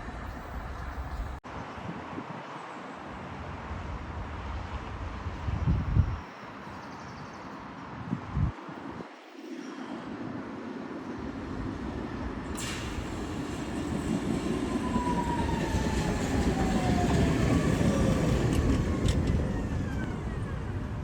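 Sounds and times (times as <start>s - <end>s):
tram and traffic rumble: 0.0s - 21.0s.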